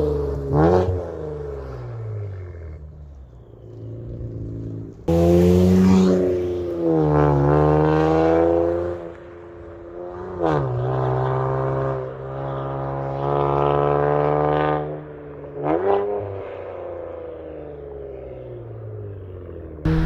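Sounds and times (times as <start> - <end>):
car exhaust revving: 3.8 - 8.8.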